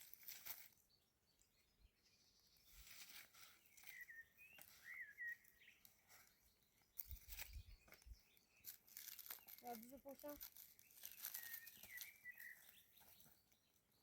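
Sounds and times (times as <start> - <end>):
soft rustling: 0.0 - 0.8, 2.7 - 5.0, 5.8 - 13.6
bird chirping faintly: 0.4 - 14.0.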